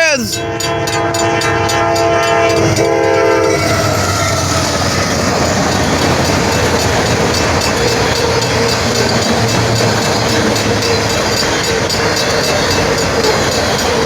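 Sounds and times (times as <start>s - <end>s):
train wheels rumbling on rails: 0.0s - 14.0s
train horn chord: 0.3s - 11.4s.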